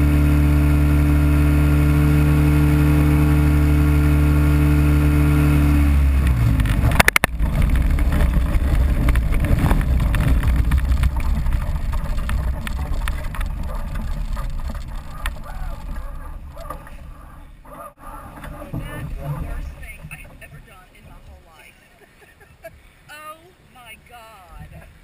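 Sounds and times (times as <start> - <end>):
powered parachute engine running: 0.0 - 20.5
low rumbling noise: 0.0 - 25.0
rattle of clicks: 6.2 - 20.7.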